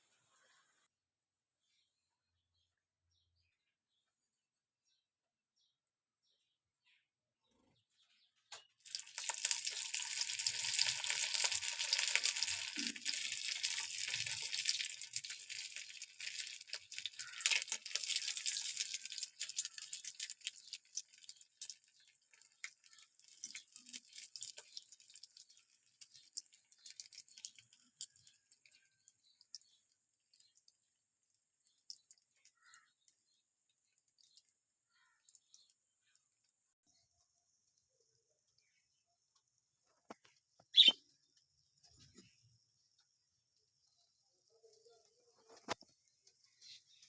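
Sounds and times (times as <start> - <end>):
food sizzling in hot oil: 8.8 - 30.9.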